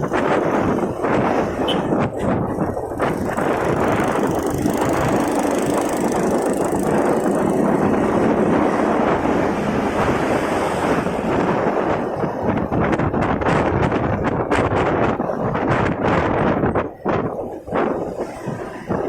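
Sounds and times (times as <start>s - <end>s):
motorcycle engine running: 0.0s - 10.2s
road traffic: 0.0s - 19.0s
wind rushing over microphone: 0.0s - 19.0s.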